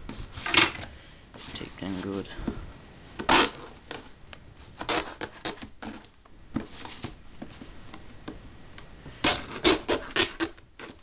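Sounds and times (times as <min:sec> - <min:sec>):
packing tape ripping: 0:03.2 - 0:04.0, 0:04.8 - 0:06.1, 0:09.2 - 0:11.0
cardboard scraping: 0:03.2 - 0:07.7, 0:09.2 - 0:11.0.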